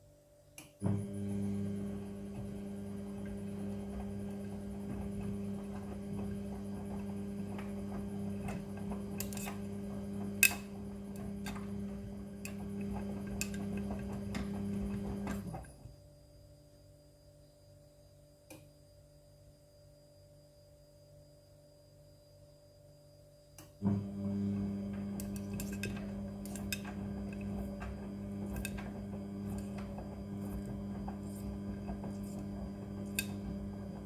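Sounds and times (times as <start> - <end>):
washing machine motor hum: 0.6 - 16.2, 23.6 - 34.0
tumbling load clicks and knocks: 24.9 - 34.0.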